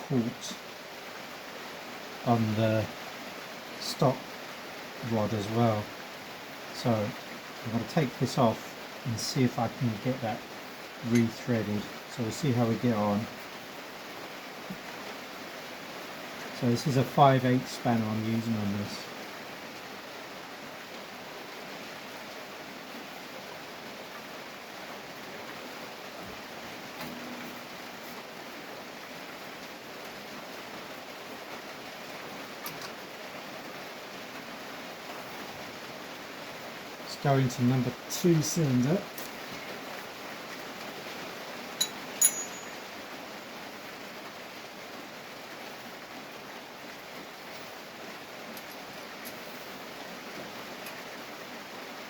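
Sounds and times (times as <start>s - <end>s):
steady background hiss: 0.0s - 52.0s
sharp metallic clinks: 41.8s - 42.9s.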